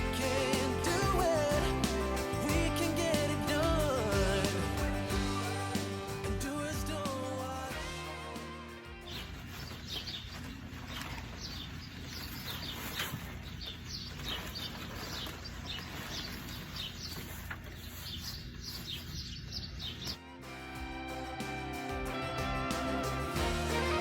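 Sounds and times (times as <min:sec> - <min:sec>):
small birds chirping: 0:08.8 - 0:20.2.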